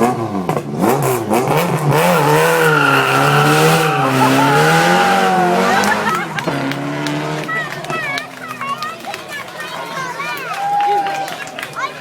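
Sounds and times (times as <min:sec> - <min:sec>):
supercar engine revving: 0:00.0 - 0:08.4.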